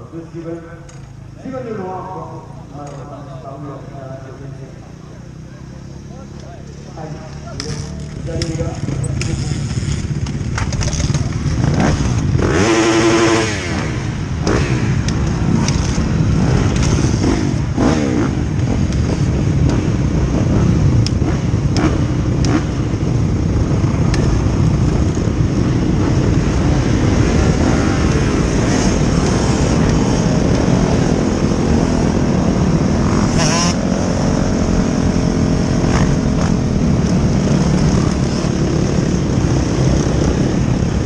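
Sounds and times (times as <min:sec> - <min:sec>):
motocross bike engines: 0:00.0 - 0:41.0.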